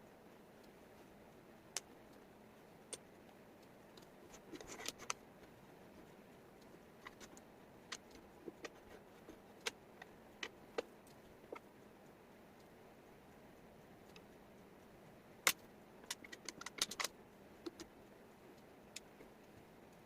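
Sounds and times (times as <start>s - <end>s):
faint room hiss: 0.0s - 20.0s
wooden puzzle pieces clicking: 7.0s - 10.9s, 15.5s - 17.9s.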